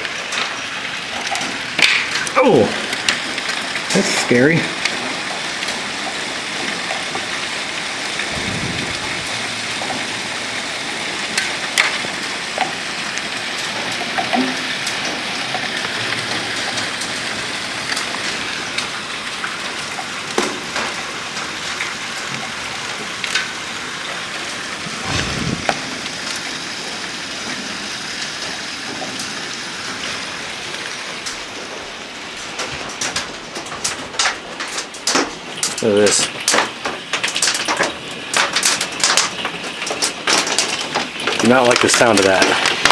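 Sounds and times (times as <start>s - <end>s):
hail pelting down: 0.0s - 42.9s
hailstones cracking on hard surfaces: 0.0s - 42.9s
low rumbles: 8.1s - 11.0s, 24.8s - 27.2s.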